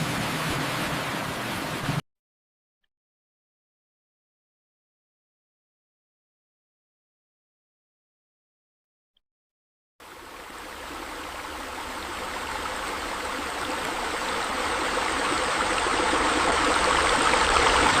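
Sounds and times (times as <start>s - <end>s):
flowing water rushing: 0.0s - 2.0s, 10.0s - 18.0s.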